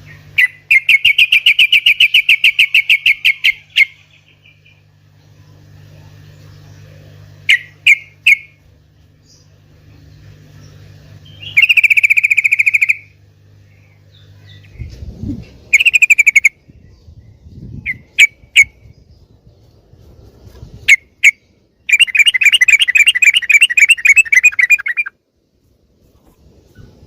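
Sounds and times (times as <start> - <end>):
bird calling fast trill: 0.0 - 4.8, 7.5 - 8.6, 11.2 - 13.2, 15.7 - 16.6, 17.8 - 19.0, 20.9 - 25.2
low steady hum: 0.0 - 27.0.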